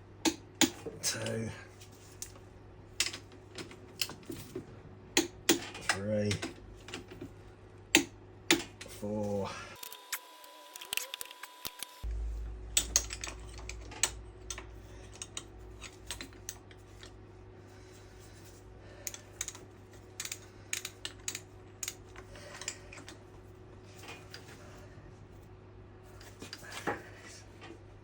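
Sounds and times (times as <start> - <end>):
low hum: 8.8 - 28.0
metal tools clicking and tapping: 12.8 - 17.1, 19.0 - 19.6, 20.2 - 23.2.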